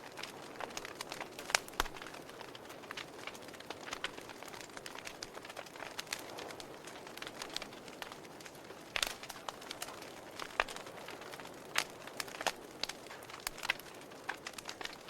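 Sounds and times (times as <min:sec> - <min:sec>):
soft rush of flame: 0:00.0 - 0:15.0
wood fire crackling and popping: 0:00.0 - 0:15.0.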